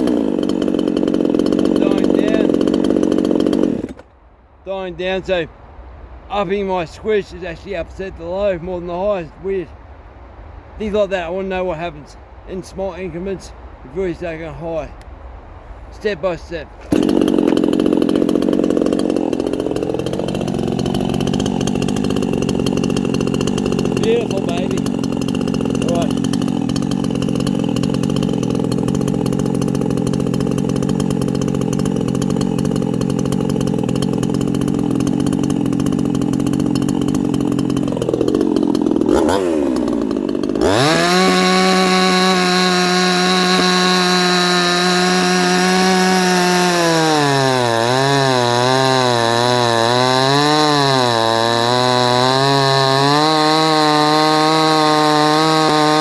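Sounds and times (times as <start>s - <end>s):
chainsaw running: 0.0s - 4.1s, 16.8s - 56.0s.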